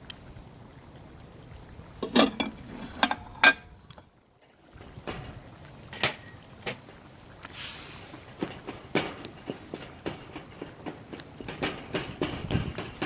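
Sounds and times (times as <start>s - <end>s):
kitchen utensils and dishes clinking: 2.0s - 3.7s, 6.0s - 6.4s.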